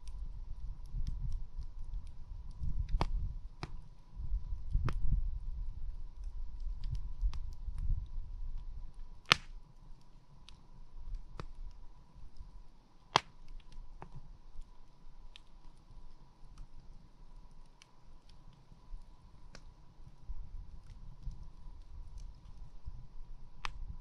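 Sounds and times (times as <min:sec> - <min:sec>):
wood campfire crackling: 0:00.0 - 0:24.0
loud fire pops: 0:02.8 - 0:03.8, 0:09.2 - 0:09.6.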